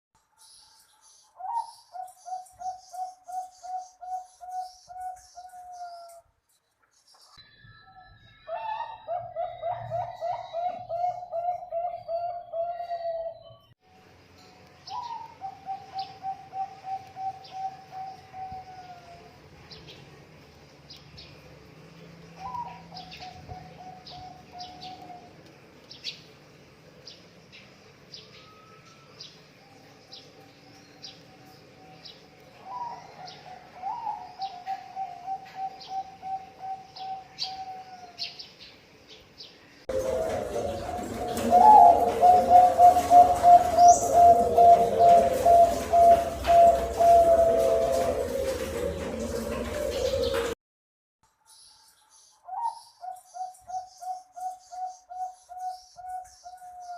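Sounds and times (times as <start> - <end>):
dove cooing: 8.5 - 13.5, 14.9 - 19.3, 22.4 - 25.4, 32.6 - 38.2, 39.9 - 50.6.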